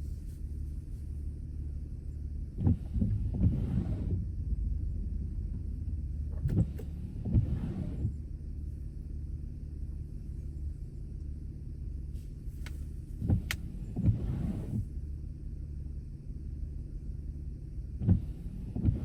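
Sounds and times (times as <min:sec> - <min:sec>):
car road and engine rumble: 0:00.0 - 0:19.0.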